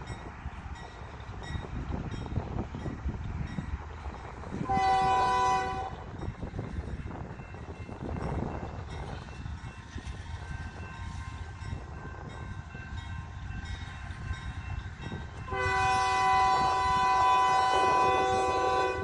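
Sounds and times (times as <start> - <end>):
train rumbling past: 0.0 - 19.0
locomotive air horn: 4.6 - 6.1, 15.5 - 19.0.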